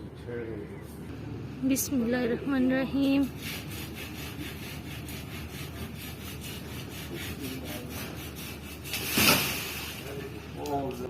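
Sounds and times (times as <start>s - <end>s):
hand saw cutting branch: 3.2s - 9.8s.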